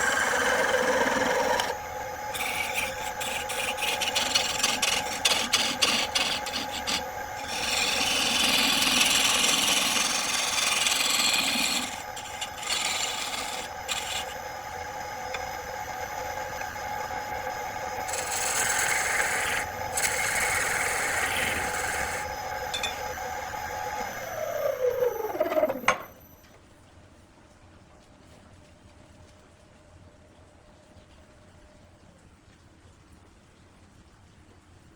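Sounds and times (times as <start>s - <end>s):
tool scraping spinning wood: 0.0s - 26.1s
lathe motor humming: 0.0s - 26.2s
motor winding down: 0.0s - 26.3s.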